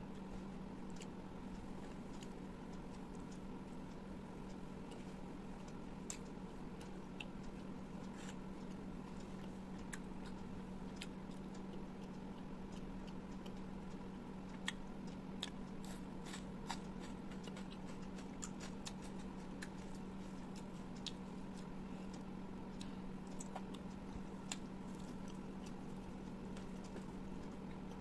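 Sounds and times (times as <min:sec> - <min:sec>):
low electrical hum: 0:00.0 - 0:28.0
wet chewing and mouth clicks: 0:04.9 - 0:21.8, 0:22.7 - 0:28.0.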